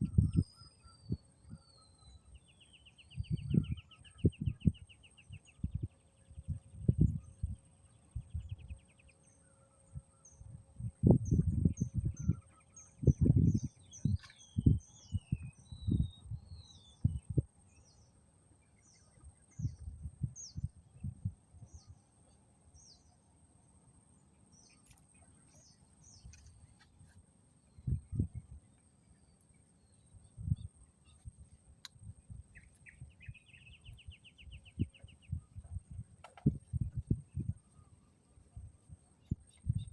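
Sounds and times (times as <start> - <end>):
wind buffeting microphone: 0.0 - 1.7, 3.0 - 9.0, 9.9 - 18.0, 18.8 - 22.0, 27.7 - 28.8, 30.1 - 39.9
small birds chirping: 0.0 - 23.3, 24.2 - 39.9.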